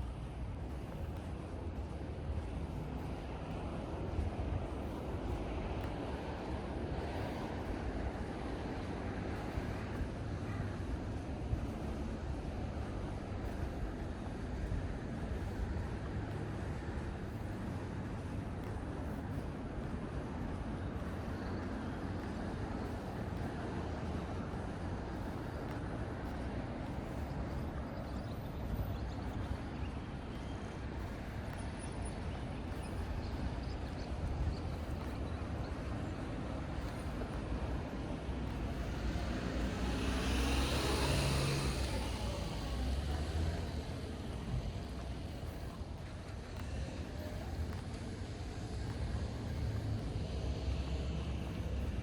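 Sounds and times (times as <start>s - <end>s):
distant road traffic: 0.0s - 52.0s
car passing by: 36.6s - 52.0s.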